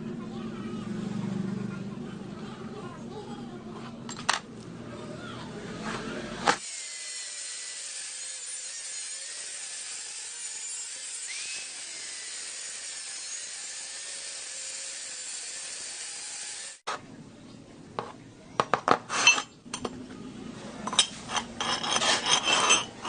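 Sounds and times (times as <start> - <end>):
power tool whining: 6.5 - 16.8.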